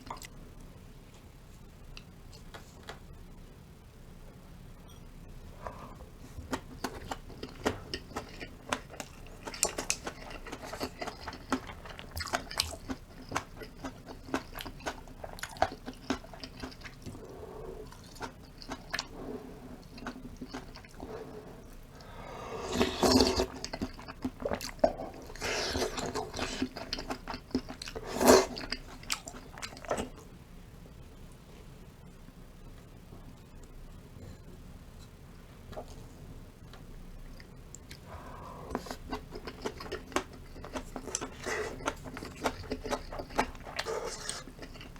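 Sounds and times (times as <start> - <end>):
wet chewing and crunching: 6.4 - 21.2, 22.8 - 30.2, 38.7 - 44.9.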